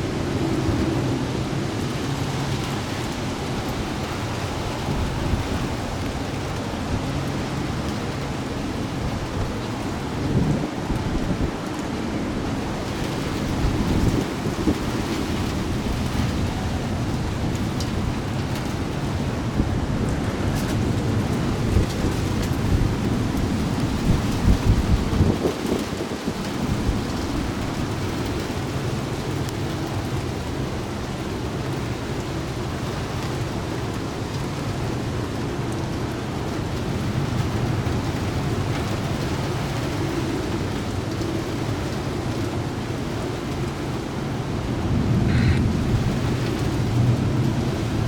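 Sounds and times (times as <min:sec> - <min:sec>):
heavy rain: 0:00.0 - 0:48.0
low rumble of thunder: 0:43.7 - 0:48.0.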